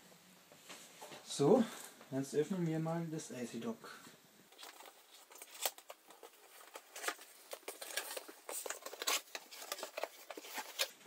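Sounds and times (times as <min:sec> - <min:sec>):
packaging rustling and scraping: 0:04.5 - 0:11.0.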